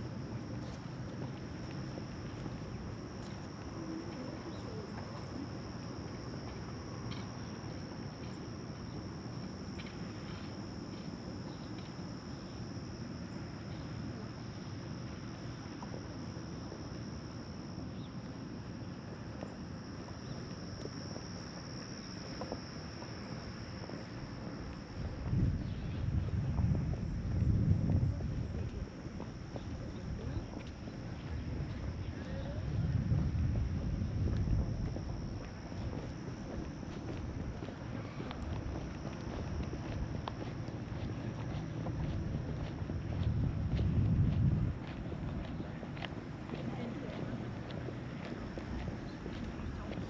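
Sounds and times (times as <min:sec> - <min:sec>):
insects droning: 0:00.0 - 0:50.0
low outdoor rumble: 0:13.2 - 0:50.0.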